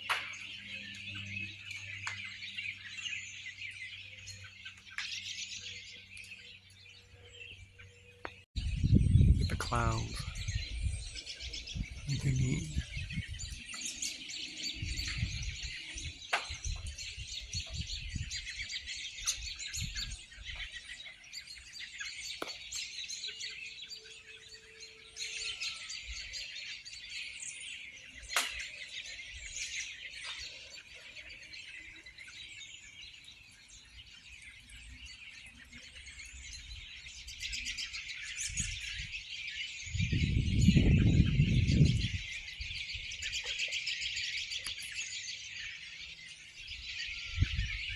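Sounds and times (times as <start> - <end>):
flock of songbirds chirping: 0.0 - 47.9.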